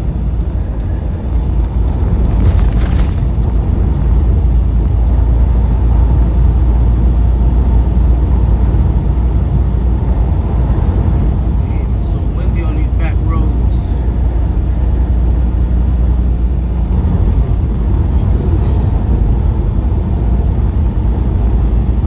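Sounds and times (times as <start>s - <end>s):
wind buffeting: 0.0s - 12.8s
truck engine and road noise: 0.0s - 22.0s.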